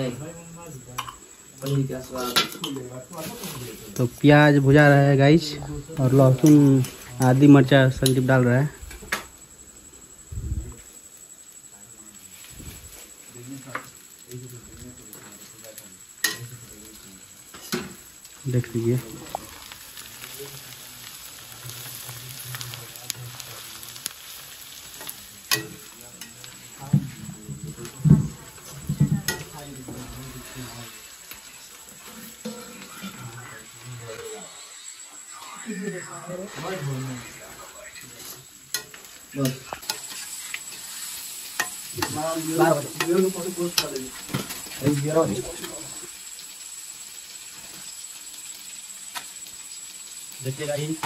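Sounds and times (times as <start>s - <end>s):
onions sizzling in oil: 0.0s - 51.0s
spoon scraping a pan: 24.4s - 34.9s, 38.2s - 45.8s.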